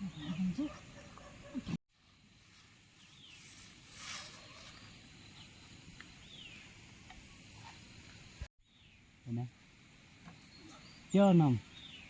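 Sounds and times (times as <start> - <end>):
distant bird chirps: 10.2 - 12.0.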